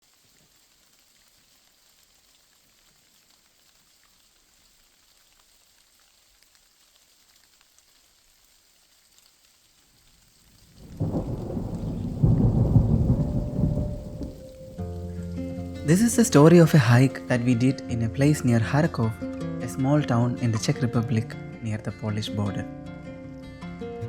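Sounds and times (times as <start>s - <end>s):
faint steady rain: 0.0s - 24.0s
low rumble of thunder: 10.5s - 15.0s.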